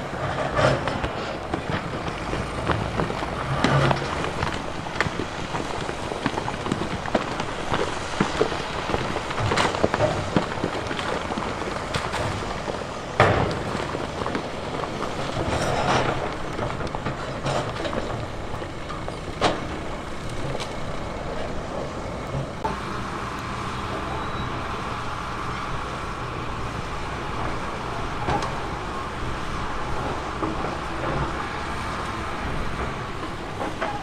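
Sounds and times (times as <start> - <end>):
heavy machinery diesel engine: 0.0 - 34.0
rock knocking and clattering: 0.3 - 21.5.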